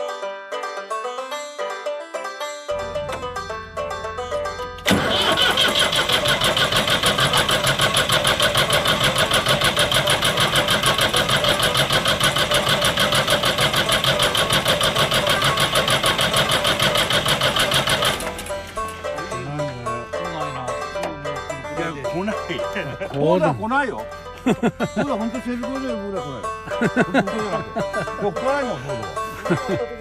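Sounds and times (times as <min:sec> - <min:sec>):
tractor engine cranking on starter: 0:04.5 - 0:19.2.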